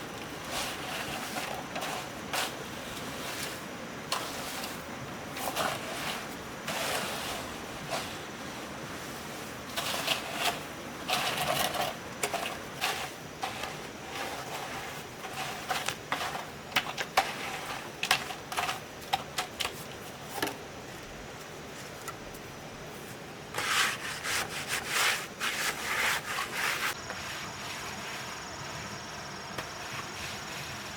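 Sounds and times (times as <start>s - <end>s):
hand tool scraping cement: 0.2s - 8.3s, 9.7s - 19.7s, 23.5s - 28.4s.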